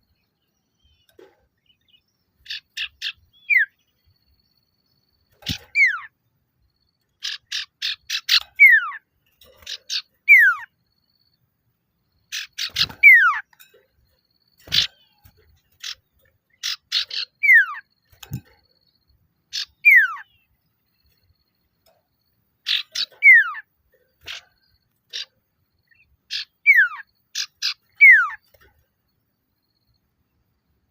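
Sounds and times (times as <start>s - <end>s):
bird rattling call: 5.2s - 6.1s, 7.1s - 10.7s, 12.3s - 18.7s, 19.5s - 20.4s, 22.6s - 28.8s.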